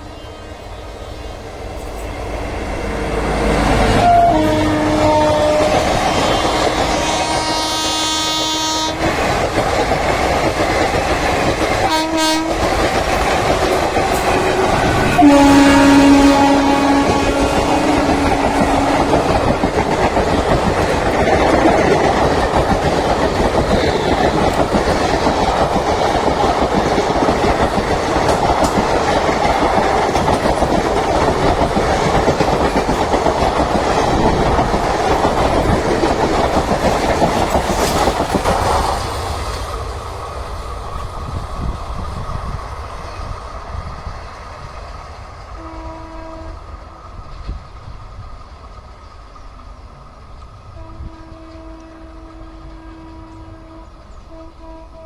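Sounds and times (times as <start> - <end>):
distant train horn: 0.0 - 9.2, 11.8 - 22.8, 45.5 - 46.9, 50.7 - 55.0
trains passing at speed: 0.0 - 55.0.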